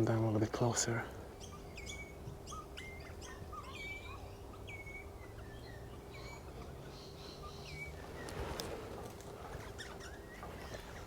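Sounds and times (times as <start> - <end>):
whistled bird notes: 1.4 - 8.6
soft low bird chirps: 9.4 - 11.0.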